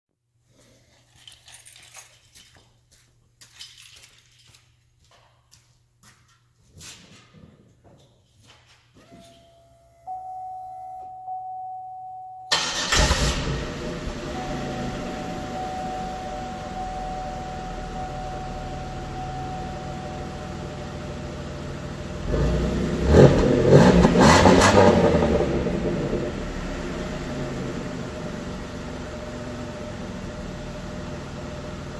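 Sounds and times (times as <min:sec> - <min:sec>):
faint steady tone: 0:09.0 - 0:12.6, 0:13.8 - 0:22.2
car engine revving: 0:12.5 - 0:31.5
car engine starting and idling: 0:12.5 - 0:31.9.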